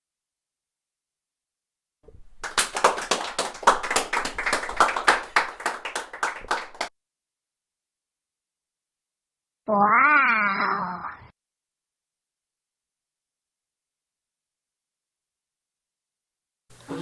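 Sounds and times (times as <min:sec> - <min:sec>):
hands clapping: 0:02.1 - 0:06.9.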